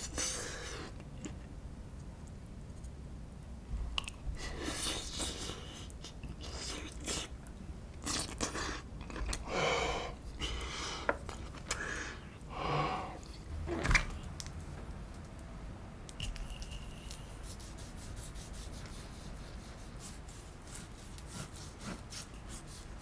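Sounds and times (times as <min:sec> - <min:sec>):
person chewing: 0:08.0 - 0:09.5.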